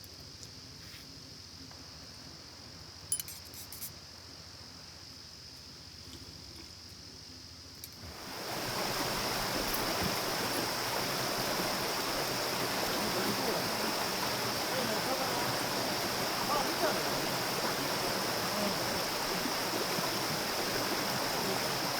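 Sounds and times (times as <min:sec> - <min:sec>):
river water rushing: 0:08.0 - 0:21.9.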